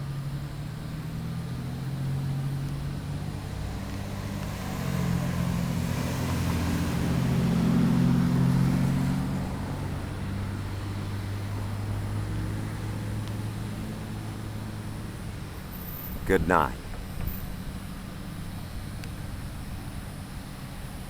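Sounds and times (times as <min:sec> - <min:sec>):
passing vehicle engine hum: 0:00.2 - 0:16.2.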